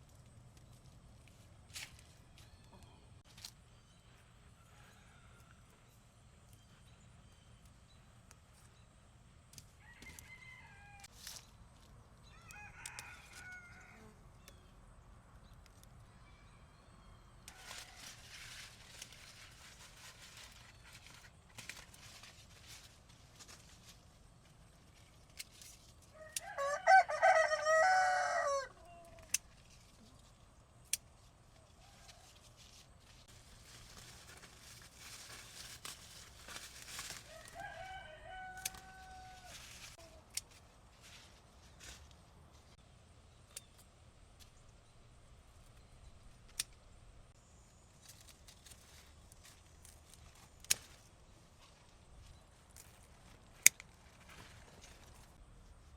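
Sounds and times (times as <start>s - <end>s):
rooster crowing: 4.6s - 5.8s, 9.8s - 11.1s, 12.3s - 14.2s, 26.2s - 29.2s, 37.2s - 39.7s.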